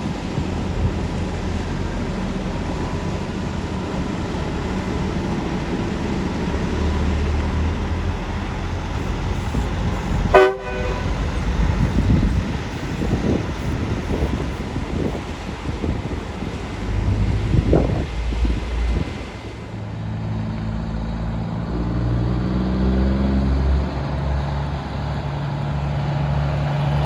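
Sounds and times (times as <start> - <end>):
road traffic rumble: 0.0 - 27.0
car horn honk: 9.0 - 11.9.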